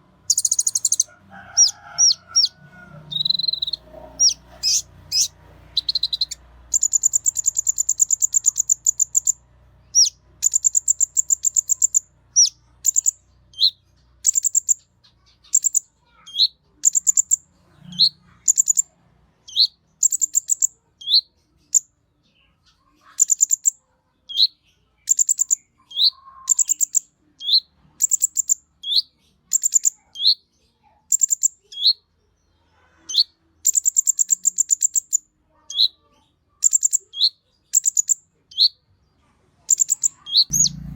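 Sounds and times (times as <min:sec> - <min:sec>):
bird singing high trills: 0:00.3 - 0:14.8, 0:39.7 - 0:40.9.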